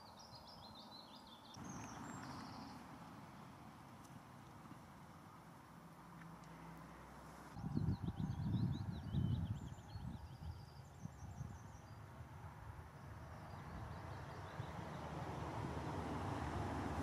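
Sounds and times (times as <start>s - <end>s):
bird chirping: 0.0s - 2.9s, 7.6s - 12.1s.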